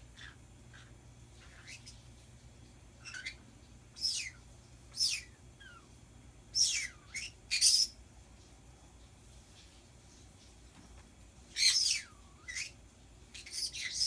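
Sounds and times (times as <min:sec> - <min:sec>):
pet birds shrill calls: 0:00.1 - 0:02.0, 0:03.0 - 0:05.9, 0:06.5 - 0:08.0, 0:11.5 - 0:14.0.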